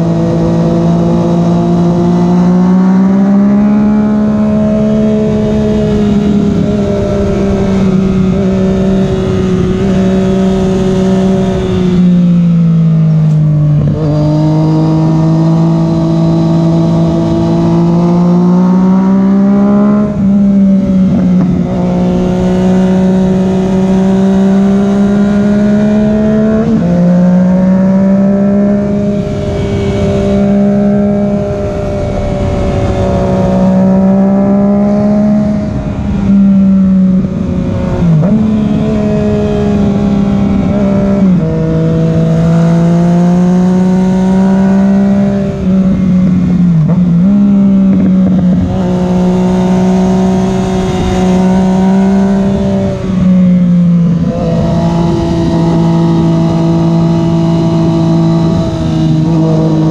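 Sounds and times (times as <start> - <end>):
motorcycle engine revving: 0.0 - 59.9
wind noise: 0.0 - 59.9.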